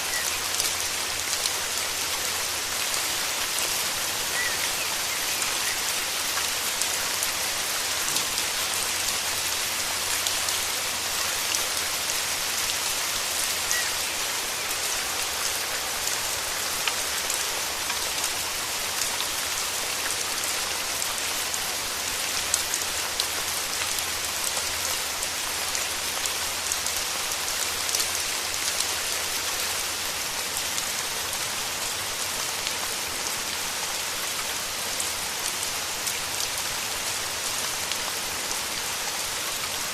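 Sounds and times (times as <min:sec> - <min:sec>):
heavy rain on foliage: 0:00.0 - 0:39.9.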